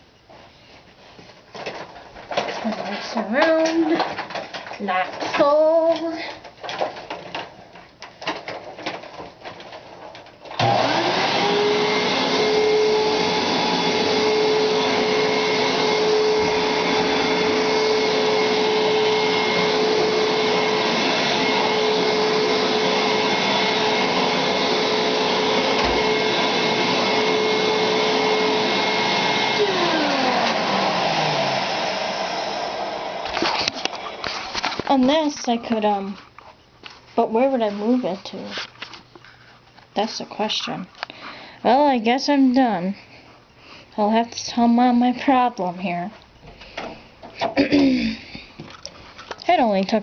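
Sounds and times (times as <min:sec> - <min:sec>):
vacuum cleaner running: 0:10.5 - 0:36.1.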